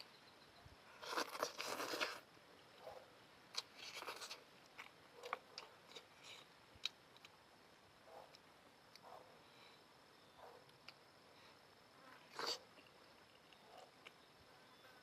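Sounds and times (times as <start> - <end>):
noodle slurping: 1.0 - 2.2, 12.3 - 12.7
chewing with wet clicks: 3.5 - 7.4, 12.3 - 14.3.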